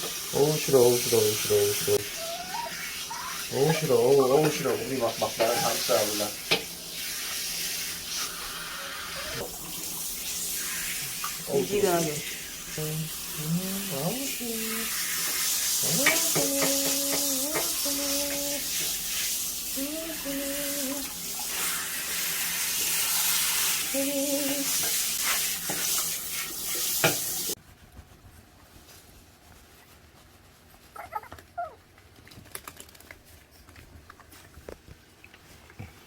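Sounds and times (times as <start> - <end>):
shower water spraying: 0.0 - 27.6
puppy whining: 2.0 - 3.9, 5.4 - 6.0, 8.6 - 9.5, 30.8 - 31.9.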